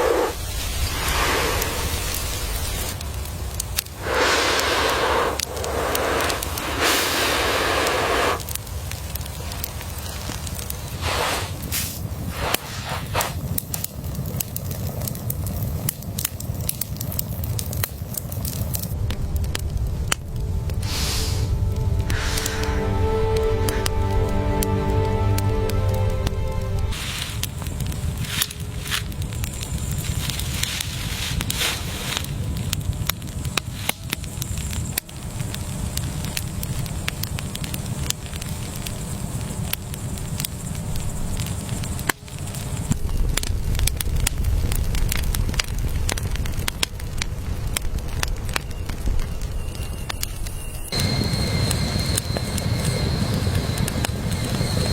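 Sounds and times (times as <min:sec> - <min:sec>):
steady low rumble: 0:00.0 - 0:14.3, 0:18.8 - 0:36.3
sharp crackles and pops: 0:00.0 - 0:54.9.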